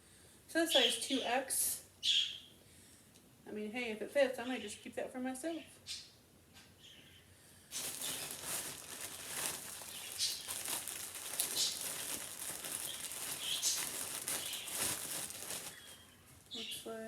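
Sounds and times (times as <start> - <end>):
clothing and packaging rustling: 7.7 - 16.6.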